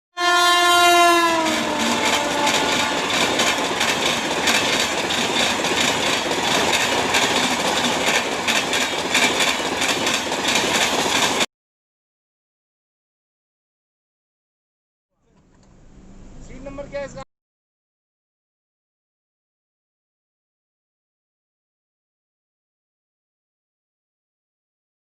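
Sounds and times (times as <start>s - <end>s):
train horn: 0.2s - 3.7s
train wheels clattering by: 1.3s - 11.5s.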